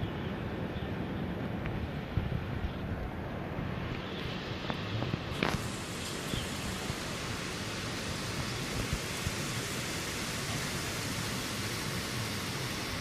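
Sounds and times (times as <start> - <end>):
strong wind: 0.0 - 13.0
driving rain: 3.4 - 13.0.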